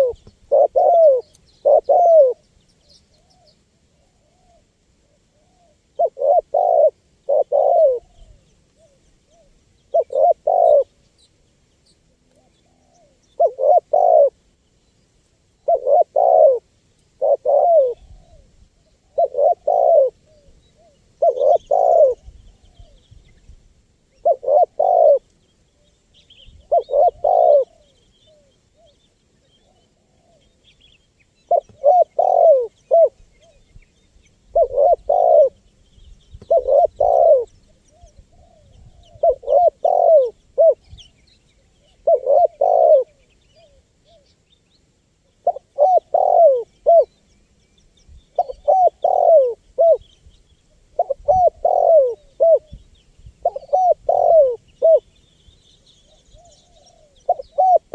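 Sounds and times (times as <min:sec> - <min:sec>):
dove cooing: 0:00.0 - 0:02.4, 0:03.2 - 0:11.0, 0:12.2 - 0:14.4, 0:15.6 - 0:23.0, 0:24.1 - 0:25.9, 0:26.5 - 0:30.7, 0:31.4 - 0:33.8, 0:34.4 - 0:35.6, 0:36.4 - 0:44.3, 0:45.2 - 0:47.2, 0:48.3 - 0:50.1, 0:50.7 - 0:55.2, 0:56.0 - 0:57.9
faint high bird chirps: 0:17.2 - 0:57.9.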